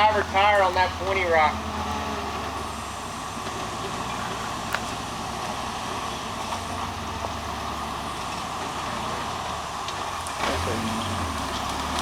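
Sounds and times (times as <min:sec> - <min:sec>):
vehicle engine running at low revs: 0:00.0 - 0:12.0.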